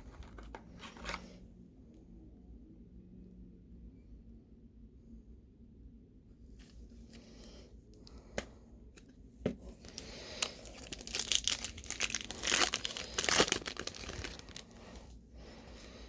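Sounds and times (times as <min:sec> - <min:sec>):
foil wrapper tearing and crinkling: 0:09.9 - 0:14.8.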